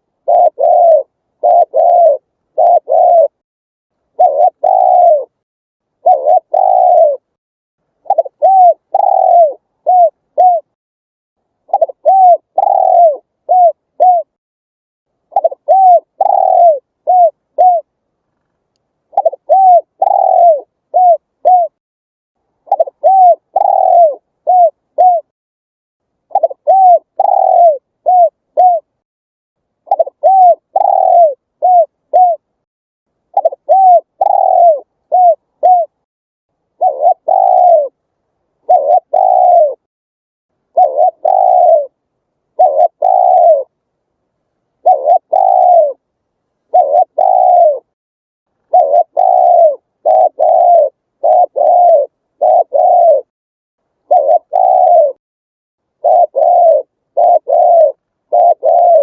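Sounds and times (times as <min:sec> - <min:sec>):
dove cooing: 0:00.0 - 0:03.4, 0:04.1 - 0:05.4, 0:06.0 - 0:07.3, 0:08.0 - 0:10.8, 0:11.7 - 0:14.4, 0:15.3 - 0:17.9, 0:19.1 - 0:21.8, 0:22.6 - 0:25.3, 0:26.3 - 0:29.0, 0:29.9 - 0:32.5, 0:33.3 - 0:36.0, 0:36.8 - 0:38.0, 0:38.6 - 0:39.9, 0:40.7 - 0:43.8, 0:44.8 - 0:46.0, 0:46.7 - 0:48.0, 0:48.6 - 0:53.3, 0:54.0 - 0:55.2, 0:56.0 - 0:59.0.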